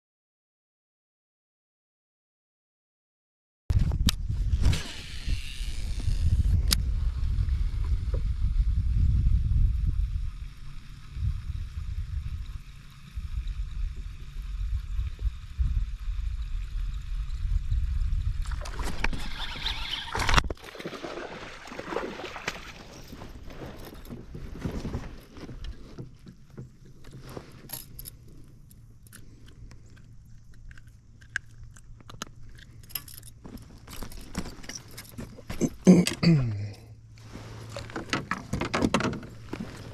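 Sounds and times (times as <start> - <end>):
wind rumbling on microphone: 3.7 - 20.6
light water noise: 9.7 - 17.6, 18.3 - 35.6.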